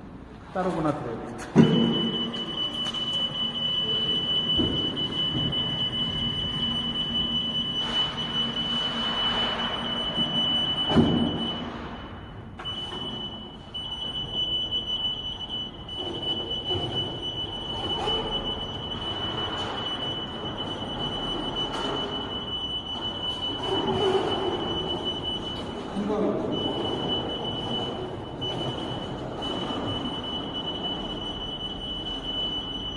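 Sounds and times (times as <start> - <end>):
machine mechanical noise: 1.5 - 32.9
high-pitched electronic warning tone: 1.6 - 32.9.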